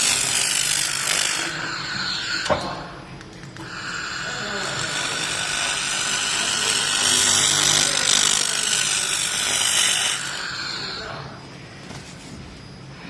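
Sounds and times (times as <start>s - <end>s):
laser cleaning high hiss: 3.6s - 11.4s.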